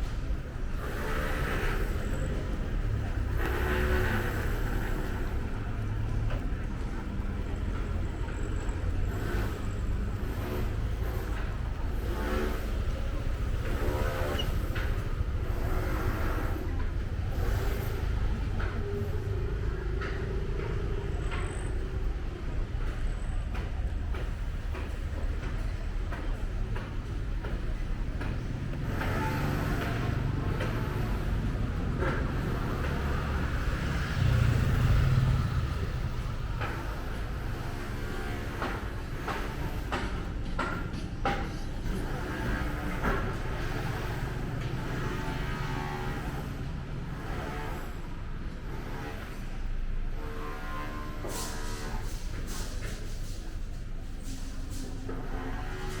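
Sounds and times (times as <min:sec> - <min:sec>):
traffic rumble: 0:00.0 - 0:56.0
vehicle passing close: 0:29.1 - 0:37.1.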